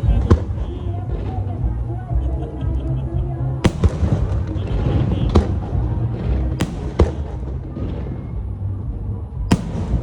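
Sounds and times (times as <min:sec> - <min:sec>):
steady low rumble: 0:00.0 - 0:10.0
fireworks bangs: 0:03.7 - 0:08.8, 0:09.4 - 0:10.0.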